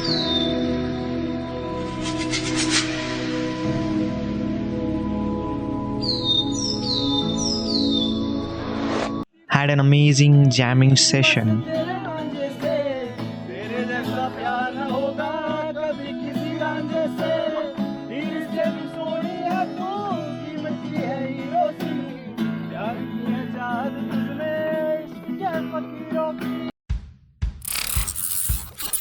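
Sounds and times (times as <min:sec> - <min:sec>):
person singing: 0:09.5 - 0:26.4
strummed acoustic guitar: 0:11.1 - 0:26.7.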